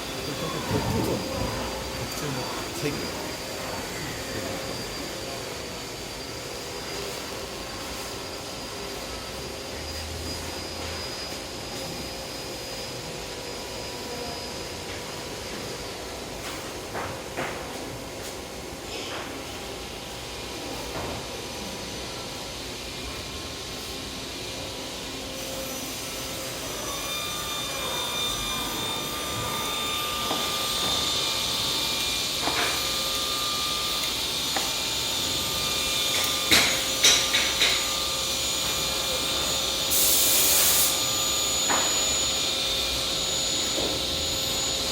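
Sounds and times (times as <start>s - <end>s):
machine drone: 0.0s - 16.3s, 40.9s - 44.9s
loud hiss: 39.8s - 41.2s.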